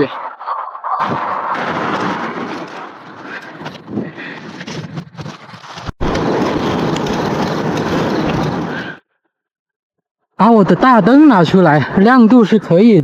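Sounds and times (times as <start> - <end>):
wind rushing over microphone: 6.0 - 9.0.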